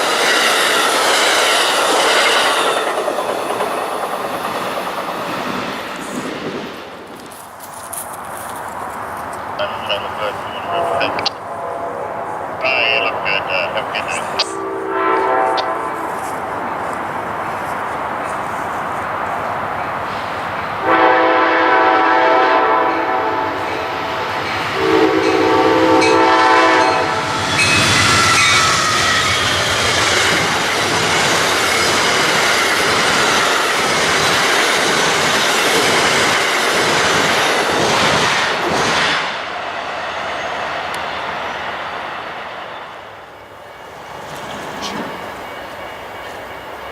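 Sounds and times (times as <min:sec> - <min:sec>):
train rushing past: 0:00.0 - 0:46.9
train air horn blasts: 0:10.6 - 0:12.4, 0:14.4 - 0:16.3, 0:20.8 - 0:23.9, 0:24.8 - 0:27.3.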